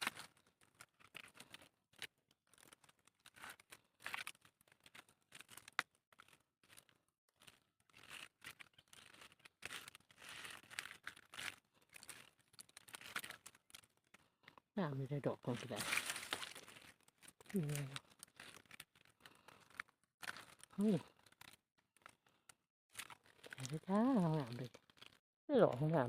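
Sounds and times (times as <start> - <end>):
dry leaves rustling and crackling: 3.3 - 13.8, 15.5 - 18.8.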